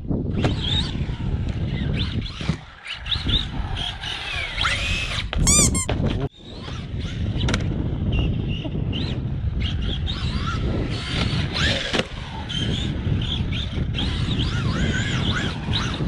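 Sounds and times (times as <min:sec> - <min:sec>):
short high squeal: 0:05.4 - 0:05.9.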